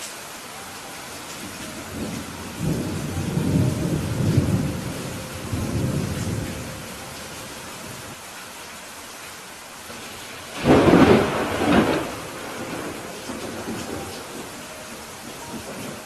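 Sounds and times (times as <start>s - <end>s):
rain hiss: 0.0s - 16.0s
low thunder rumble: 1.4s - 8.2s, 10.4s - 16.0s.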